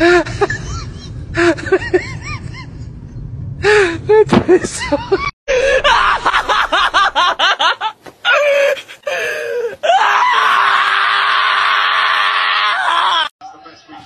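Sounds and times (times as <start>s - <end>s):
person laughing: 0.0s - 2.8s
person screaming: 9.8s - 13.3s.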